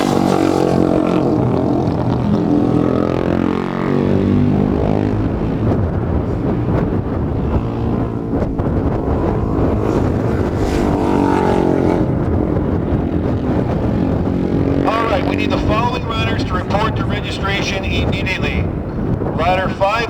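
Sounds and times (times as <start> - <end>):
racing motorcycles passing by: 0.0 - 20.0.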